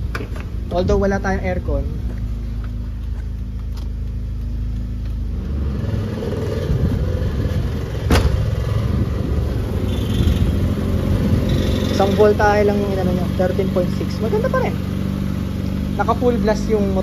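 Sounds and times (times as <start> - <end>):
car engine idling: 0.0 - 5.8, 6.7 - 17.0
blower fan air rush: 6.2 - 11.8.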